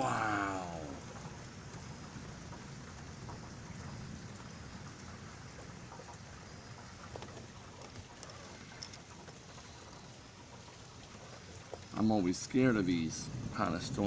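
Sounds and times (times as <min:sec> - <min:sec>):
steady rain falling: 0:00.0 - 0:14.0
faint drip clicks: 0:01.1 - 0:12.1
low thunder rumble: 0:12.6 - 0:14.0.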